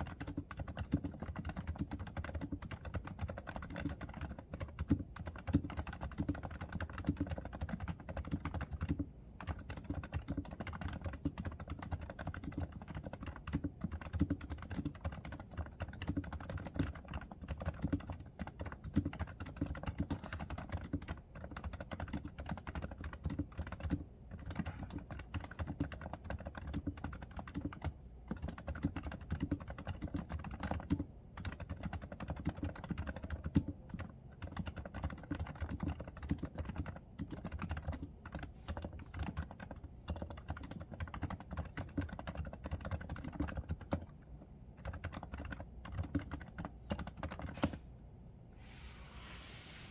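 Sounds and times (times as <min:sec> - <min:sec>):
typing on keyboard: 0:00.0 - 0:47.8.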